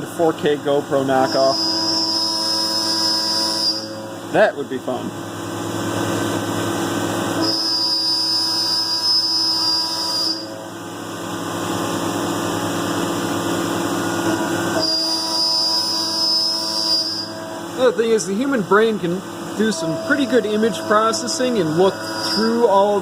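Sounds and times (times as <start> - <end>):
milling machine humming: 0.0 - 23.0
high-pitched whine: 0.9 - 4.7, 7.4 - 23.0.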